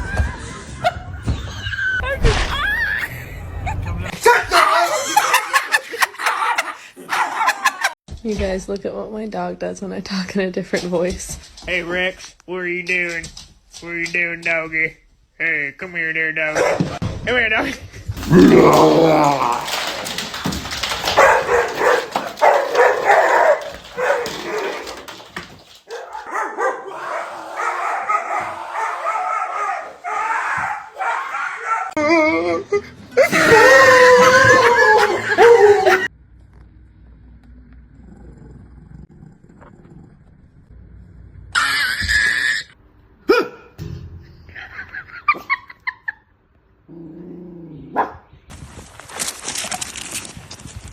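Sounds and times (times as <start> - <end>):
dog barking: 16.6 - 17.0, 20.9 - 25.2, 25.9 - 32.0, 47.9 - 48.3.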